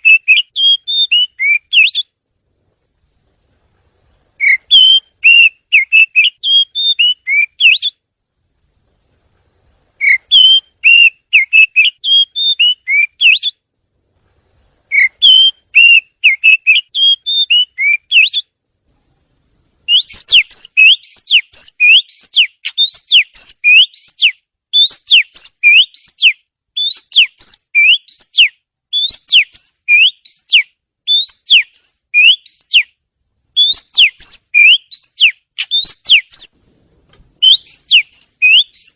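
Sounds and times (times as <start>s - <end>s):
bird singing whistled phrases: 0.0s - 2.2s, 4.4s - 8.0s, 10.0s - 13.6s, 14.9s - 18.5s, 19.9s - 33.0s, 33.6s - 36.6s, 37.4s - 38.9s.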